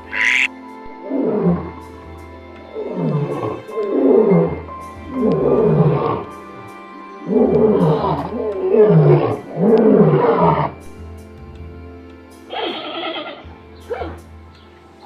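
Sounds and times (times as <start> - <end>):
harsh high animal call: 0.0 - 0.5, 12.5 - 14.2
large animal deep calls: 0.0 - 1.8, 2.7 - 6.3, 7.2 - 10.8, 12.5 - 14.2.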